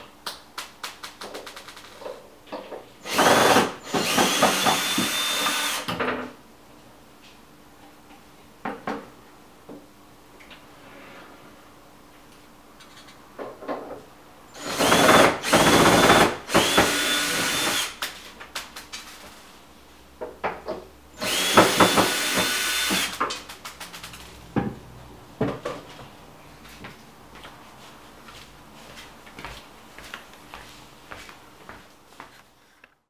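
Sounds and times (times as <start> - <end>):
power drill whining: 3.0 - 5.9, 14.6 - 18.0, 21.2 - 23.2.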